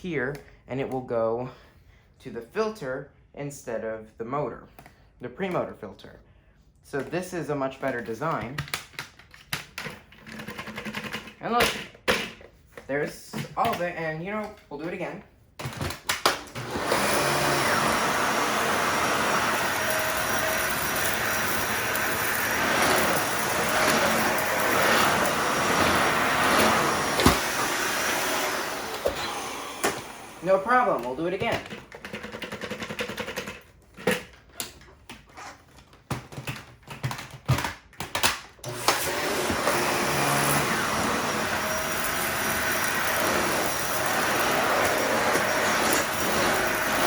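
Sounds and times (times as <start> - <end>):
clicks and knocks of handling: 7.8 - 15.0, 31.4 - 38.5
vacuum cleaner running: 16.5 - 31.7, 38.6 - 47.0.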